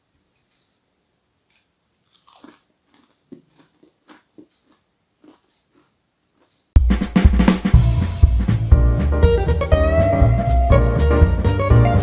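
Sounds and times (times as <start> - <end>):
crunching and chewing fried food: 1.5 - 6.8
loud music: 6.8 - 12.0.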